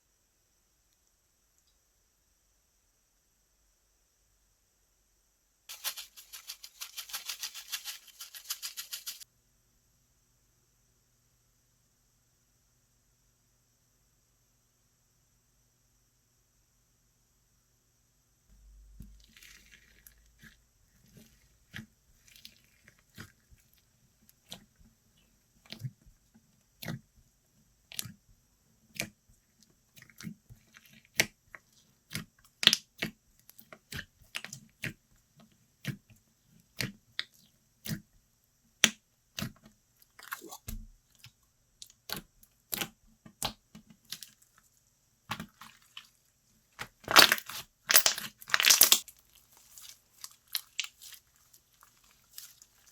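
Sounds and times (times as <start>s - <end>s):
slime crackling burst: 47.0s - 51.2s.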